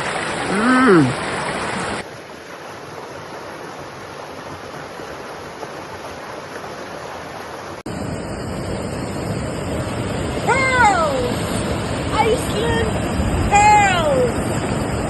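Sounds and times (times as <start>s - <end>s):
louder rush with low rumble: 7.9s - 15.0s
steady rushing noise: 7.9s - 15.0s.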